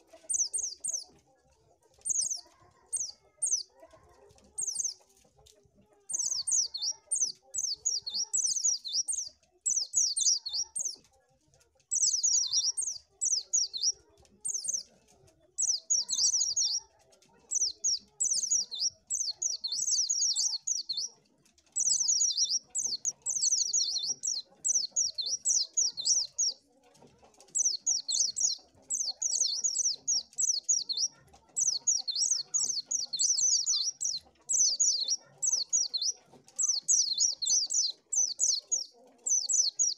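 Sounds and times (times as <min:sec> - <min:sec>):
bird chirping: 0:00.0 - 0:01.2, 0:01.9 - 0:05.2, 0:06.1 - 0:11.1, 0:11.8 - 0:39.9.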